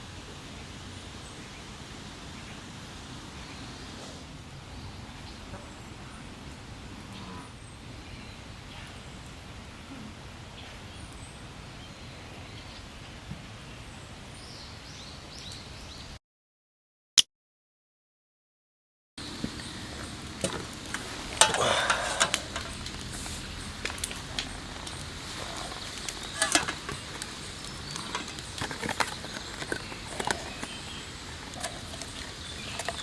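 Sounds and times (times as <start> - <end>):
steady hiss: 19.2 - 33.0.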